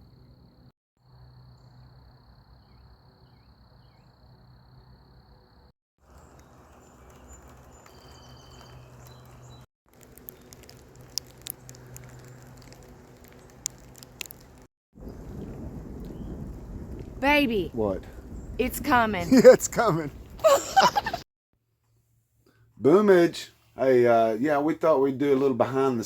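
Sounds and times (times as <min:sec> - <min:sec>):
insects droning: 0:00.0 - 0:14.5
bird chirps: 0:02.6 - 0:04.2, 0:06.1 - 0:09.6
sharp ticks: 0:08.6 - 0:14.7.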